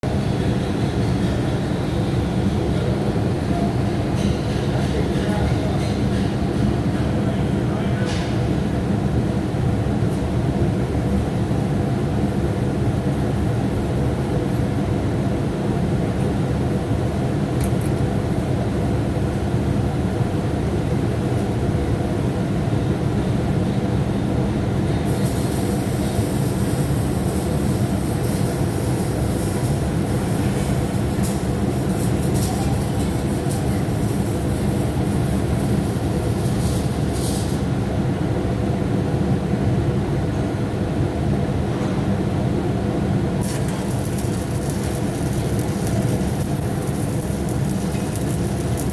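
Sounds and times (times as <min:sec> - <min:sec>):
electric welding arc crackling: 0:43.4 - 0:48.9
low machine hum: 0:43.4 - 0:48.9.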